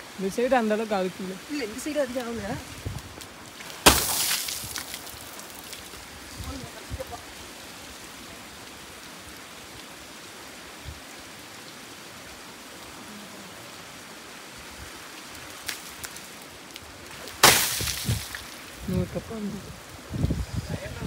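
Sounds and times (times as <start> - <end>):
rain hissing on wet road: 0.0 - 21.0
sharp raindrop taps: 2.1 - 6.0, 15.2 - 18.6.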